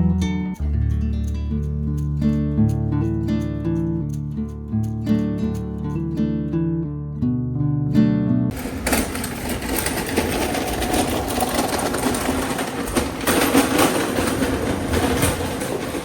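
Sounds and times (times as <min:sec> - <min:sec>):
machine clattering rattle: 0:08.5 - 0:16.0.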